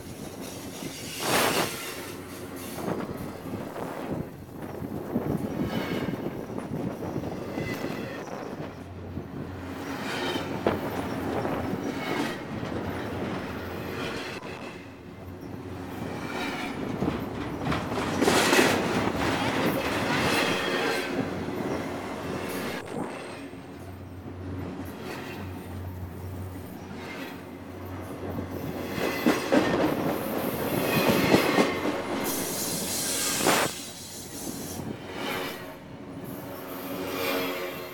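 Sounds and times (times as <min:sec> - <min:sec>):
steel wheels rumbling on rails: 0:00.0 - 0:37.9.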